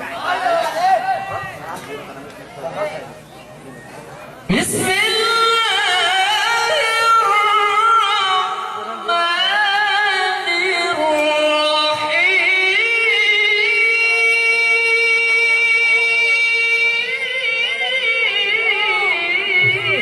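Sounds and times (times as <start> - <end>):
person reciting melodically: 4.5 - 20.0.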